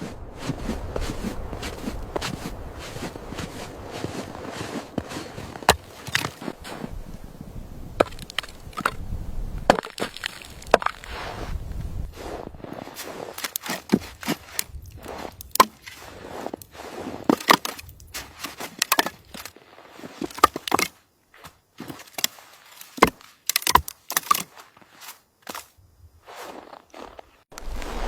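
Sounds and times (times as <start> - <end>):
sharp knocks and cracks: 15.4 - 15.9, 22.9 - 24.5.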